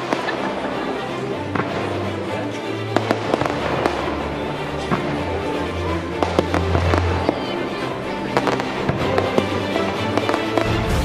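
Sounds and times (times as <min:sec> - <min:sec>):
fireworks bangs and crackles: 0:00.0 - 0:00.7, 0:01.4 - 0:02.0, 0:03.0 - 0:05.5, 0:06.2 - 0:07.4, 0:08.4 - 0:11.0.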